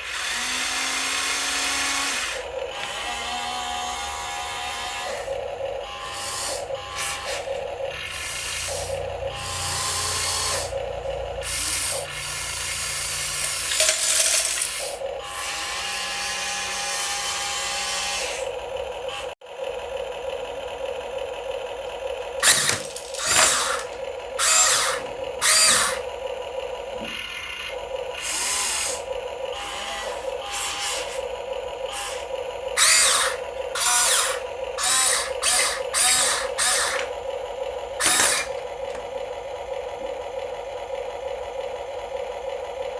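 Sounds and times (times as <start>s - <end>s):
loud rasping bursts: 0.0s - 10.8s, 22.4s - 26.2s, 28.2s - 37.2s, 38.0s - 38.6s
small electric motors whirring: 0.0s - 19.4s, 22.4s - 39.3s.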